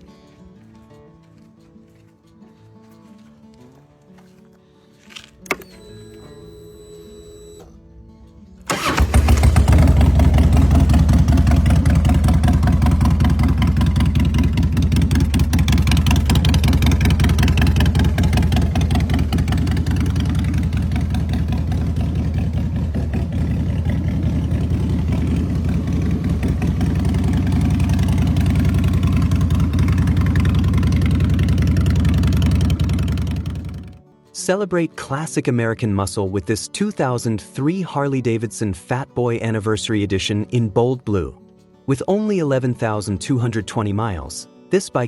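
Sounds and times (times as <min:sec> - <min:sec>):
motorcycle engine starting and idling: 0:05.3 - 0:34.0.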